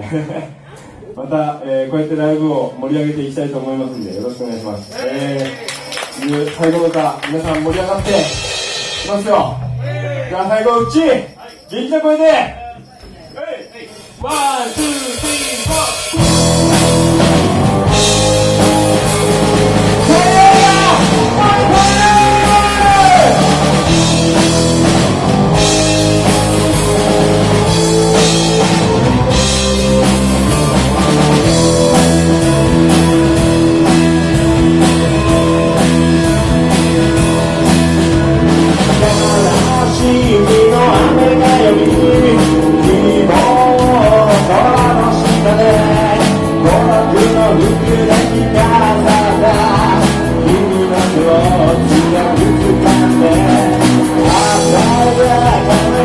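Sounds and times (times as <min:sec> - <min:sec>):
drum kit: 0:07.0 - 0:11.4, 0:12.4 - 0:56.0
bass guitar: 0:07.2 - 0:11.4, 0:14.0 - 0:56.0
electric guitar: 0:16.1 - 0:56.0
man singing: 0:20.0 - 0:24.0, 0:38.8 - 0:56.0.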